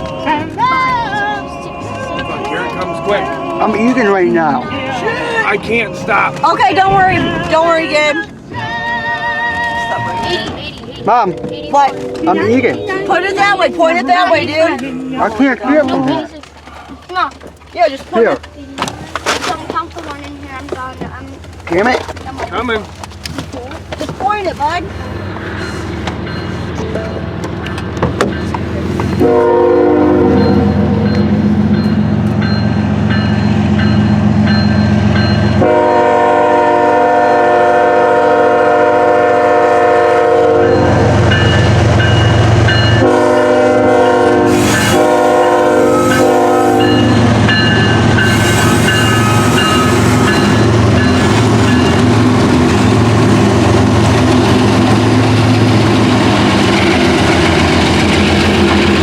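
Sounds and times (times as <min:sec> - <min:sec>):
diesel locomotive engine rumble: 0:00.0 - 0:59.0
locomotive horn blasts: 0:05.0 - 0:13.7, 0:29.2 - 0:31.1, 0:35.5 - 0:52.2.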